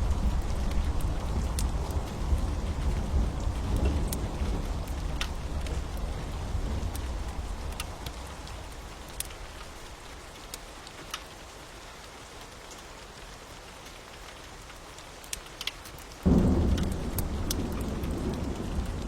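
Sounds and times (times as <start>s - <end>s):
thunder rumbling: 0.0s - 10.0s, 16.2s - 19.0s
wood fire crackling: 0.0s - 11.5s, 13.8s - 19.0s
steady rain: 0.0s - 19.0s.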